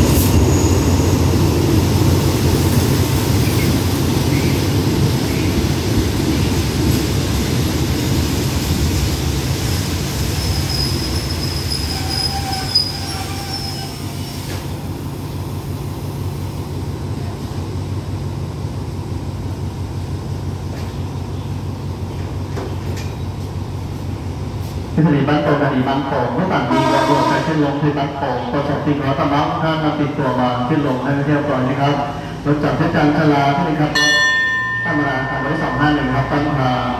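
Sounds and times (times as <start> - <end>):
low train rumble: 0.0 - 36.9
train coaches rolling: 0.0 - 36.9
brake squeal: 10.3 - 14.8.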